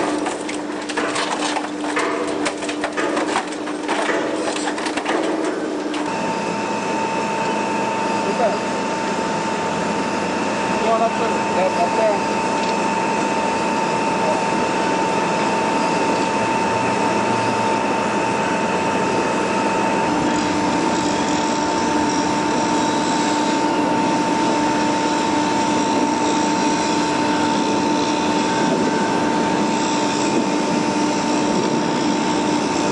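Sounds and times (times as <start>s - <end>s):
industrial shredder running: 0.0s - 32.9s
low mechanical hum: 0.0s - 32.9s.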